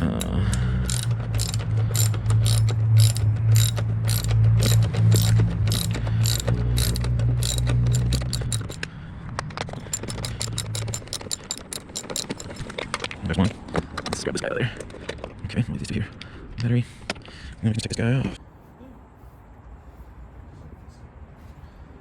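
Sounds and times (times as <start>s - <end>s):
ratchet wrench clicking: 0.0s - 8.9s, 9.7s - 13.0s.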